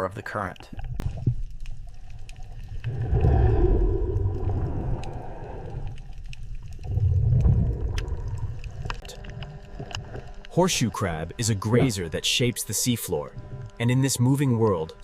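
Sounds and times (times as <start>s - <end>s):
deep underwater rumble: 0.7s - 10.5s.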